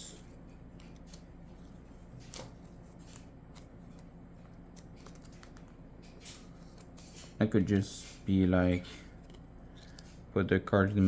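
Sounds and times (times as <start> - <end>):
low steady hum: 0.0 - 11.0
card holder clicks and rustles: 2.2 - 7.0.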